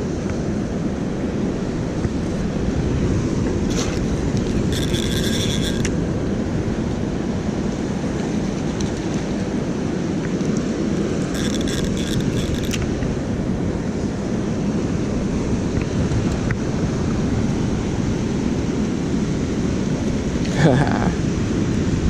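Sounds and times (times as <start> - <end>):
fishing reel whirring: 3.7 - 6.0, 11.2 - 12.9.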